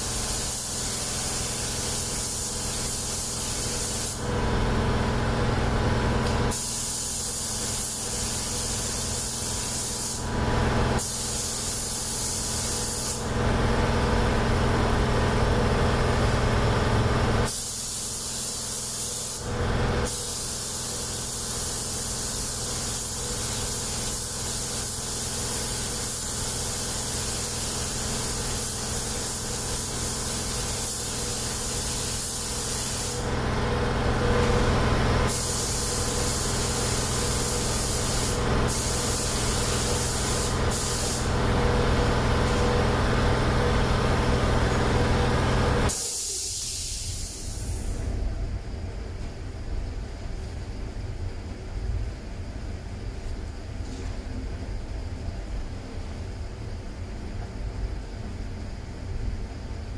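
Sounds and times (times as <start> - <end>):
spray gun hissing: 0.0 - 4.3, 6.5 - 10.3, 11.0 - 13.3, 17.5 - 33.4, 34.2 - 41.4, 45.9 - 48.0.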